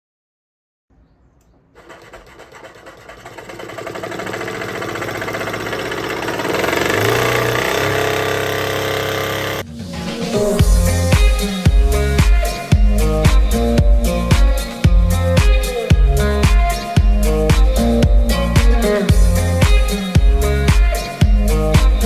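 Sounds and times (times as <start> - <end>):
jigsaw table buzzing: 1.8 - 9.6.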